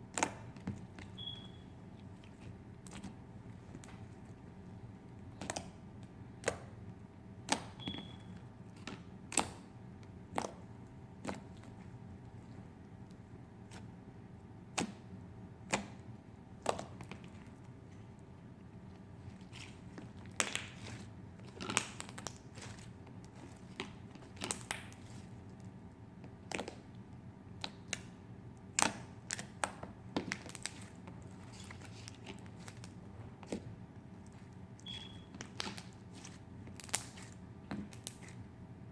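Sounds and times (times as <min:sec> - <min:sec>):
slime clicking and popping: 0:08.8 - 0:09.7, 0:20.3 - 0:20.9, 0:34.8 - 0:38.3.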